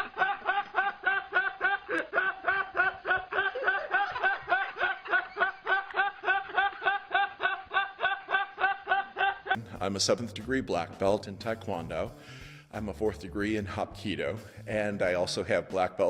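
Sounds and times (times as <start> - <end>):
repeated chuckling laugh: 0.0 - 9.7.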